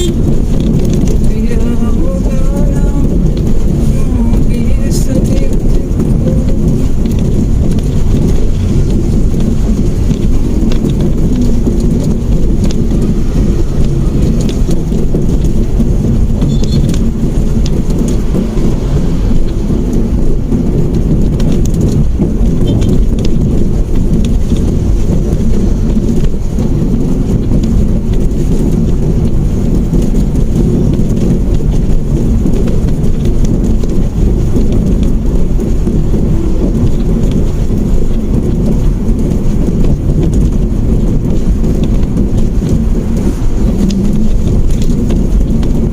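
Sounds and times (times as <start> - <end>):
car road noise: 0.0 - 45.9.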